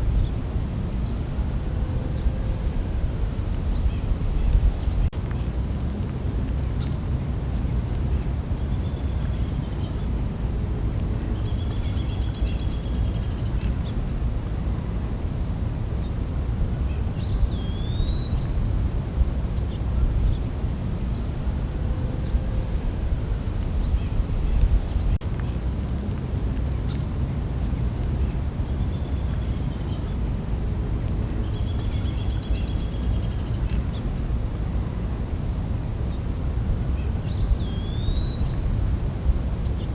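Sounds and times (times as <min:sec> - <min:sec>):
insects buzzing drone: 0:00.0 - 0:39.9
insects chirping: 0:00.0 - 0:39.9.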